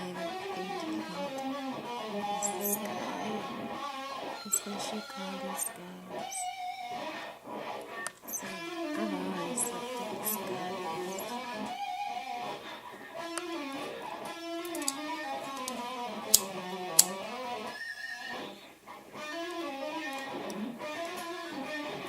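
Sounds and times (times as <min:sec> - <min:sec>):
sharp clicks: 0:00.0 - 0:11.8, 0:12.6 - 0:17.8
electric guitar music: 0:00.0 - 0:22.0.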